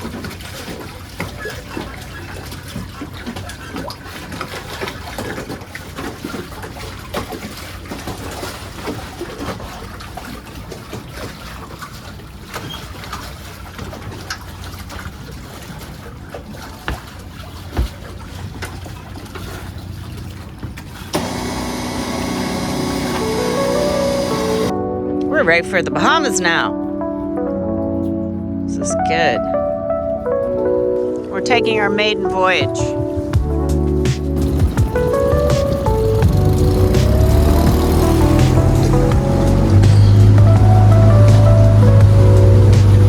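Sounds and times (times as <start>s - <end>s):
water trickling and splashing: 0.0s - 24.8s, 30.4s - 43.0s
outboard motor running: 0.0s - 26.6s, 31.4s - 43.0s
music: 22.6s - 43.0s.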